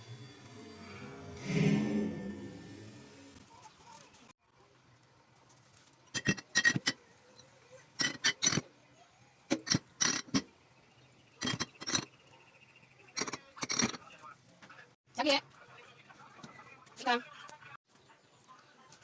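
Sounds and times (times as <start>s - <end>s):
containers clinking: 6.0s - 7.0s, 11.4s - 12.2s, 13.2s - 14.0s.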